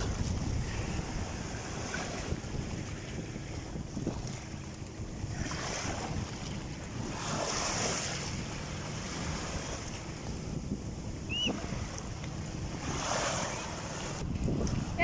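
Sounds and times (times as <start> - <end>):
sea waves washing in: 0.0 - 15.0
wind buffeting microphone: 0.0 - 15.0
short high chirp: 11.3 - 11.6.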